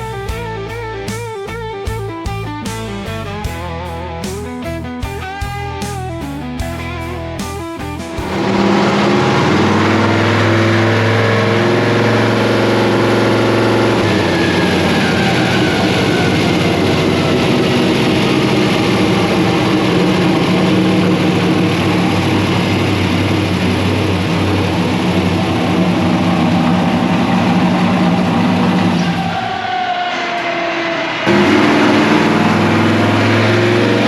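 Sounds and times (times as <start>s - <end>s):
truck engine running hard: 0.0s - 34.0s.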